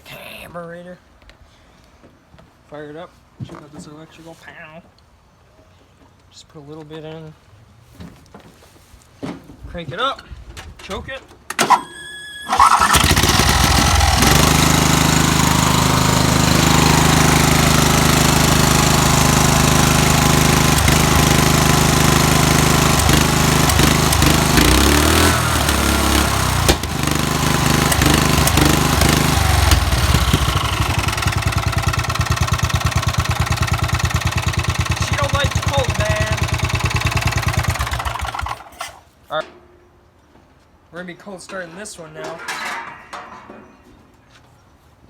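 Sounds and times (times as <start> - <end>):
lawn mower engine running: 11.6 - 39.0.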